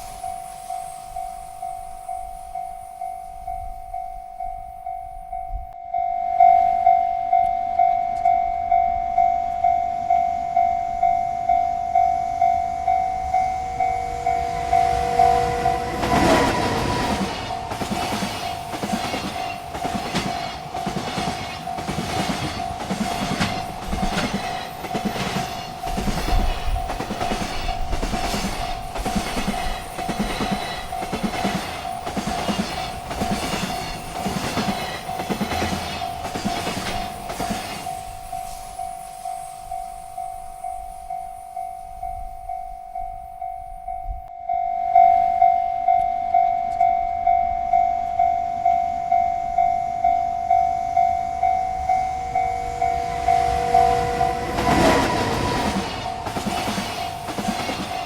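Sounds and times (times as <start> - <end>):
railroad crossing bell ringing: 0.0 - 58.0
train wheels clickety-clack: 12.9 - 40.7, 51.5 - 58.0.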